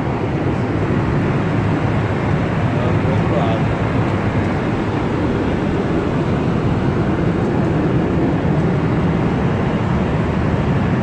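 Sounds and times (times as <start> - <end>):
aircraft cabin engine rush: 0.0 - 11.0.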